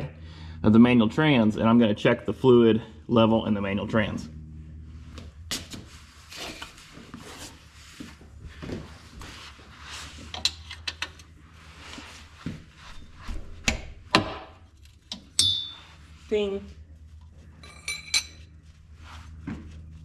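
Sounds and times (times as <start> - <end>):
tools scraping metal: 6.3 - 7.6
metallic ring: 15.3 - 16.1, 17.6 - 18.5.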